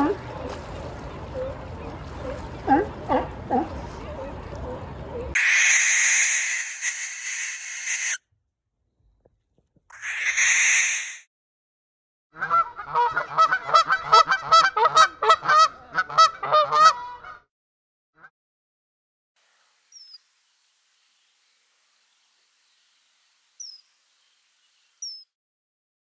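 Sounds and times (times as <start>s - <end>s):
hissing noise: 5.4s - 8.2s, 10.0s - 11.2s
rapid pitched animal calls: 5.4s - 8.2s, 9.9s - 11.2s.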